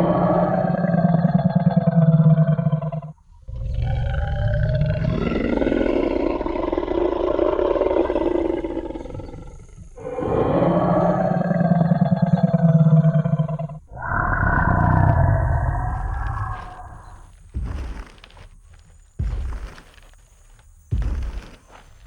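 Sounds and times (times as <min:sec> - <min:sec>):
dinosaur long roar: 0:00.0 - 0:17.3
dinosaur low growl: 0:00.0 - 0:17.3.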